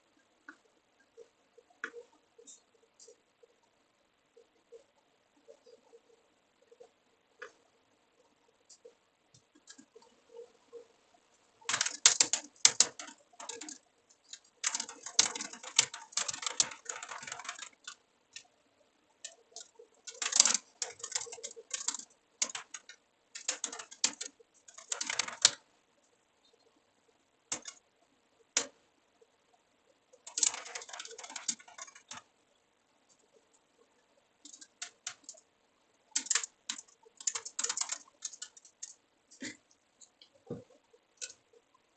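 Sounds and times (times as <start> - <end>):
keyboard typing: 11.6 - 18.6, 19.2 - 25.6, 27.5 - 27.8, 28.5 - 28.8, 30.1 - 32.3, 33.1 - 35.5, 36.1 - 41.6.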